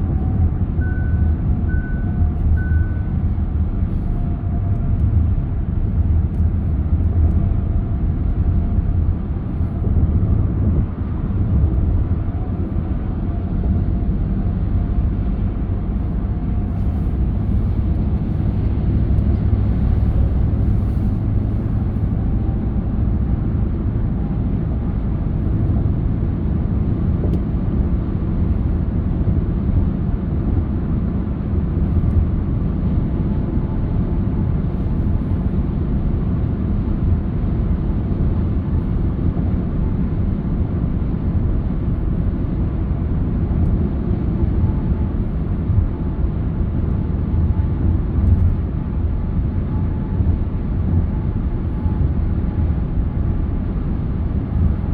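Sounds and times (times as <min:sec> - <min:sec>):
car road and engine rumble: 0:00.0 - 0:54.9.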